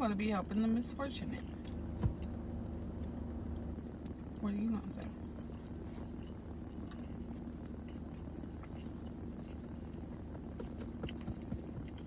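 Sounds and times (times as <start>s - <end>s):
low hum with held tone: 0.0s - 12.0s
faint eating clicks: 6.1s - 12.0s.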